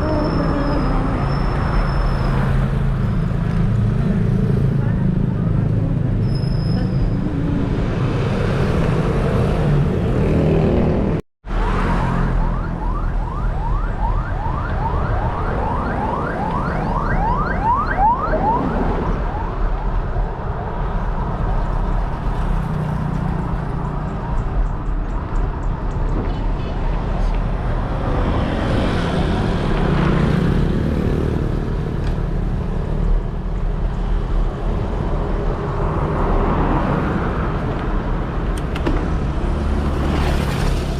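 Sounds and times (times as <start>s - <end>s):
wind and road noise: 0.0s - 40.9s
siren yelping: 11.8s - 19.7s.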